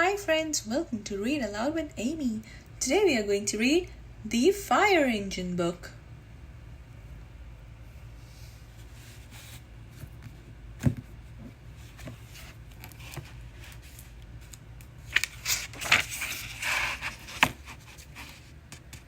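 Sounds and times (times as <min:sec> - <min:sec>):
paper rustling: 0:11.8 - 0:19.0.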